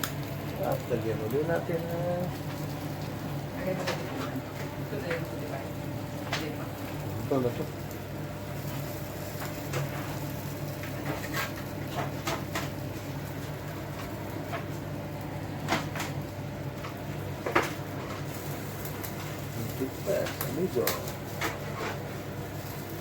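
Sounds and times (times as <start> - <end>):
wings laid on grill clicking: 0.0 - 23.0.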